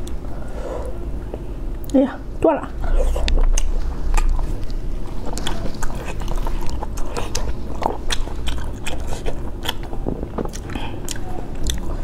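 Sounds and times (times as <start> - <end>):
close-up chewing and biting: 2.8 - 12.0.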